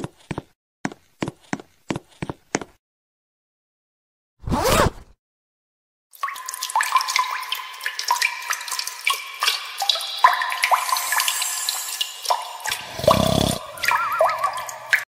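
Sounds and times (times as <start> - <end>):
water dripping into sink: 6.2 - 15.0.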